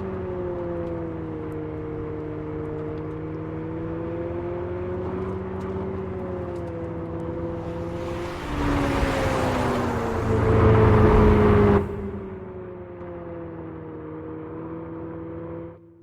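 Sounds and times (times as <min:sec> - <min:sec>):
road noise: 0:03.2 - 0:15.7
electric car droning tone: 0:06.7 - 0:15.7.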